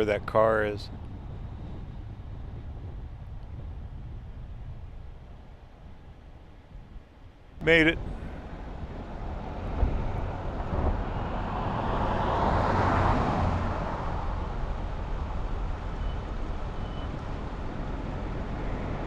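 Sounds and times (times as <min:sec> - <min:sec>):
low traffic rumble: 0:00.0 - 0:19.0
vehicle passing at speed: 0:08.2 - 0:19.0.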